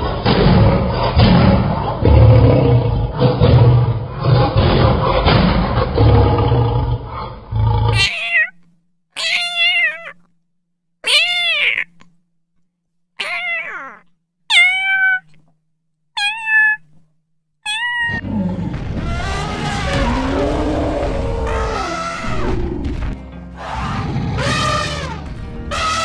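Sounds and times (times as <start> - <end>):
kitten meowing: 8.0 - 8.6, 9.2 - 10.2, 11.0 - 12.0, 13.2 - 15.4, 16.2 - 16.9, 17.6 - 18.2.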